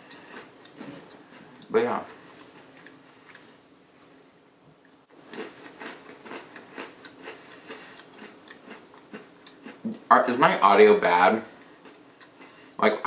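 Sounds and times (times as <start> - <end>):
cookie crunching chewing: 5.2 - 9.8.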